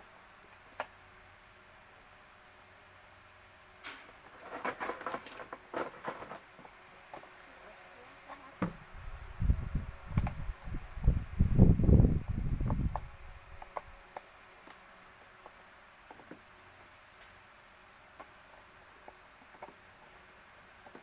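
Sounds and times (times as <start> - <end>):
small hard parts clicking and rattling: 4.3 - 6.5.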